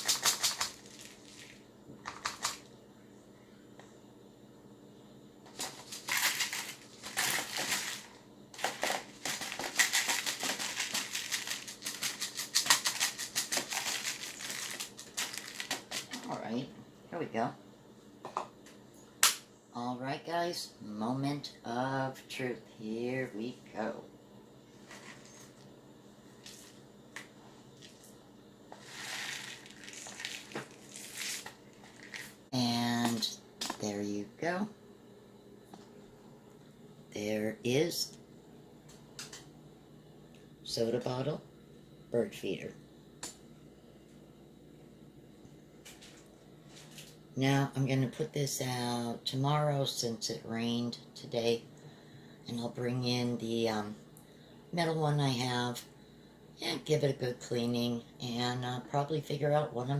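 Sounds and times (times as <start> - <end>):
plastic bottles crinkling: 0.0 - 2.7, 5.5 - 16.4, 28.8 - 32.5
faint steady hum: 0.0 - 59.9.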